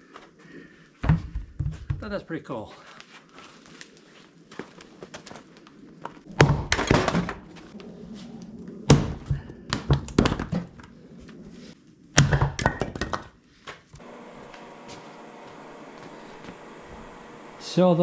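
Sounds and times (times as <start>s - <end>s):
heavy thunks of wood struck: 6.3s - 7.4s, 8.9s - 10.7s.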